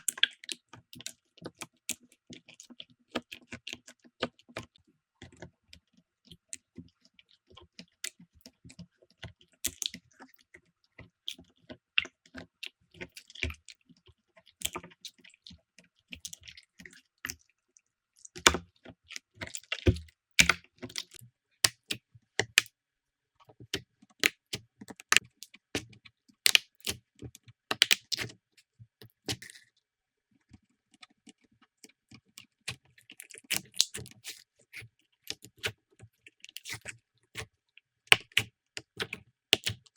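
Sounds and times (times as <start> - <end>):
slime sticky clicks and pops: 26.5 - 26.7.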